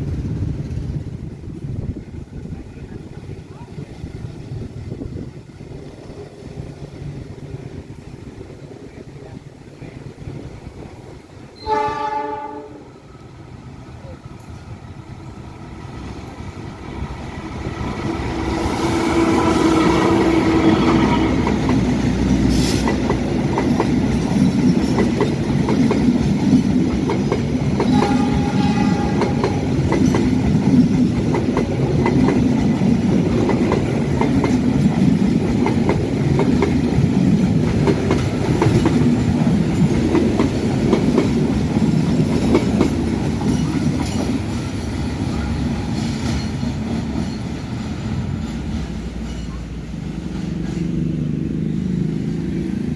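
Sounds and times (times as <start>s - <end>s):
diesel locomotive engine: 0.0s - 52.9s
train wheels clicking over rail joints: 14.3s - 51.2s.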